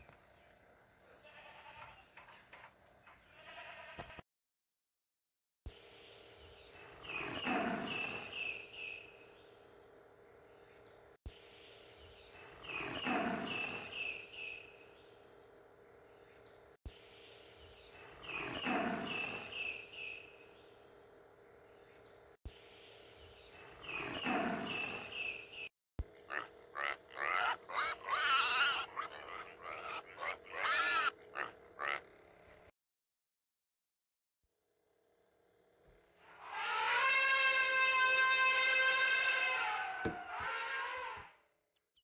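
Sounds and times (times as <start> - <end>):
animal call with higher notes: 26.3 - 32.0.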